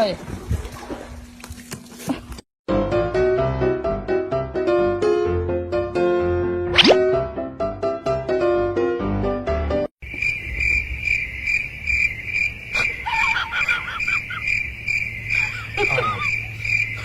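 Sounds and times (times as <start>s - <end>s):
music: 2.7s - 9.9s
crickets chirping: 10.0s - 17.0s.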